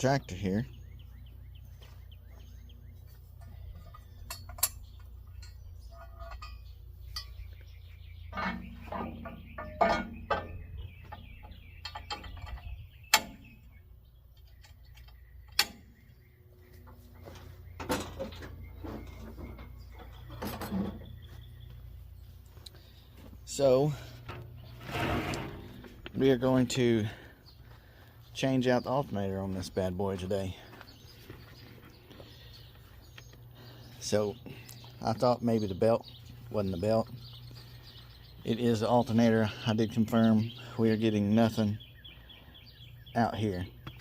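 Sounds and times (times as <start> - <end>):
birds chirping: 0.0 - 44.0
steady low hum: 0.0 - 44.0
sharp clicks and metallic clinks: 3.4 - 7.5.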